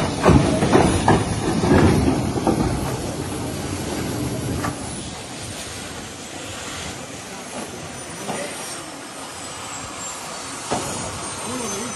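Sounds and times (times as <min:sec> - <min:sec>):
helicopter engines and rotor: 0:00.0 - 0:11.9
faint high whine: 0:04.2 - 0:11.9.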